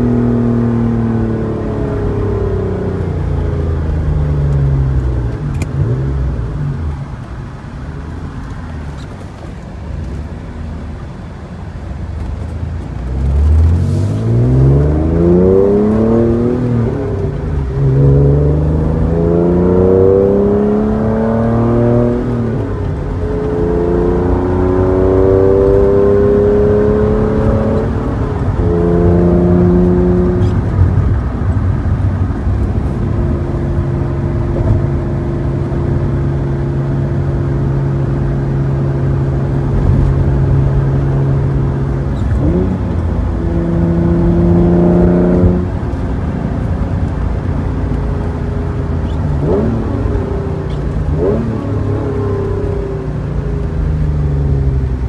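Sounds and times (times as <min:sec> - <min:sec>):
car engine accelerating through gears: 0:12.0 - 0:55.0.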